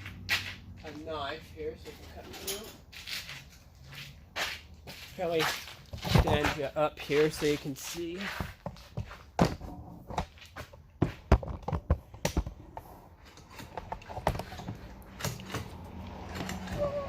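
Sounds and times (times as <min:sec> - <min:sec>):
objects knocking and clicking: 0:11.0 - 0:16.9.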